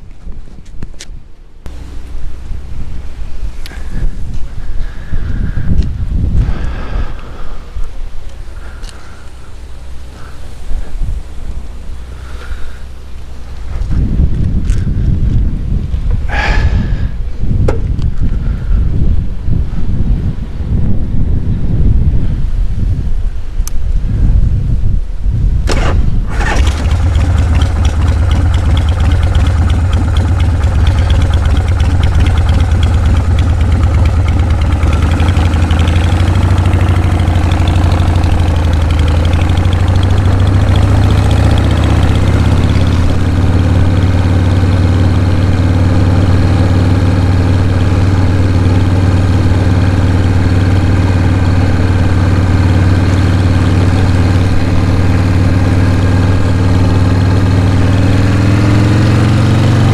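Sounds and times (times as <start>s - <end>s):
motorcycle engine idling: 25.8s - 58.4s.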